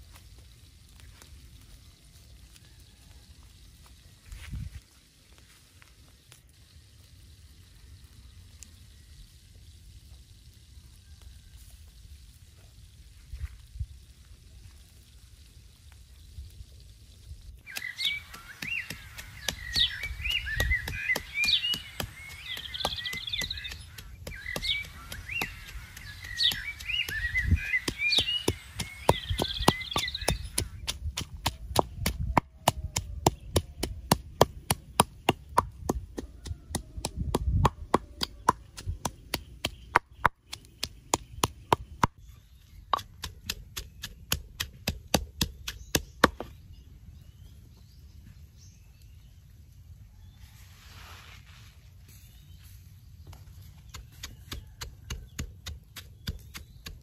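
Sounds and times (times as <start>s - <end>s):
birds chirping: 17.6s - 50.6s, 52.1s - 57.0s
wooden pestle pounding in mortar: 17.7s - 42.2s, 42.9s - 46.5s, 53.9s - 57.0s.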